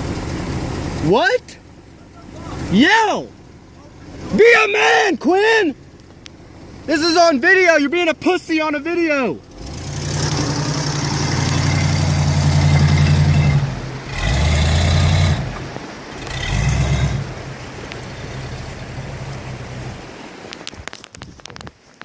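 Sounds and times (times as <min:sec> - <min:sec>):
engine revving under load: 0:09.4 - 0:20.4.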